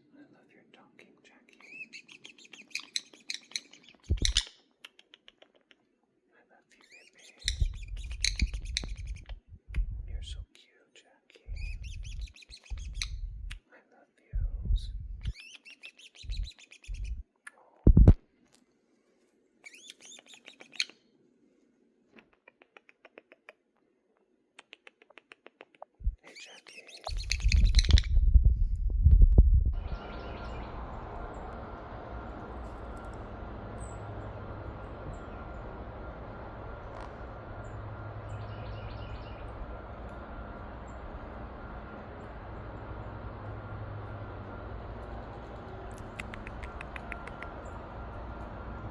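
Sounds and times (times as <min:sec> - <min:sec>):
parrot chirping: 0:01.6 - 0:05.7, 0:06.8 - 0:09.5, 0:11.5 - 0:13.4, 0:15.2 - 0:17.2, 0:19.6 - 0:21.0, 0:26.2 - 0:28.2, 0:29.8 - 0:48.8
low hum: 0:03.2 - 0:04.4, 0:07.4 - 0:10.5, 0:11.4 - 0:13.6, 0:14.3 - 0:15.4, 0:16.2 - 0:17.2, 0:26.0 - 0:26.3, 0:27.1 - 0:48.9
low thumps: 0:27.4 - 0:45.3.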